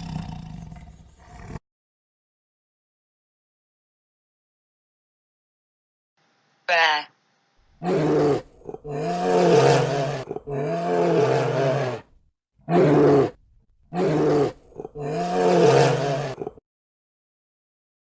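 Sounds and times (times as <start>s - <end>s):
bear roaring: 0.0s - 1.6s, 7.8s - 12.1s, 12.7s - 16.6s.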